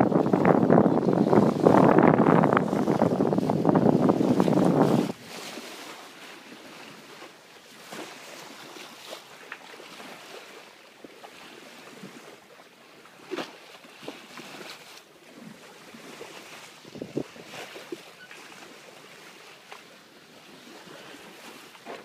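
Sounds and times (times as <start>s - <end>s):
water splashing along hull: 0.0s - 22.0s.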